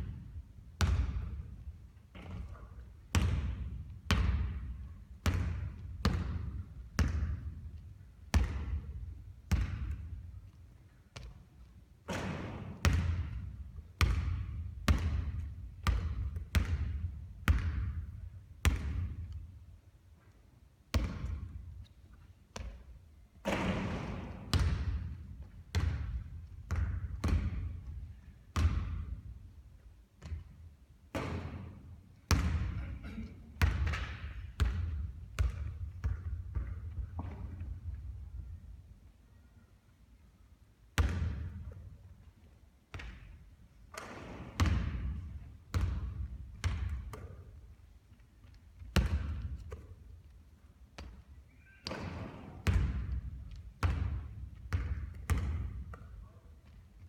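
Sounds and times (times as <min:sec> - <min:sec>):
basketball bouncing on court: 0:00.0 - 0:19.5, 0:20.9 - 0:21.9, 0:22.5 - 0:29.4, 0:30.2 - 0:38.6, 0:41.0 - 0:42.0, 0:42.9 - 0:47.8, 0:48.4 - 0:50.2, 0:51.0 - 0:56.8.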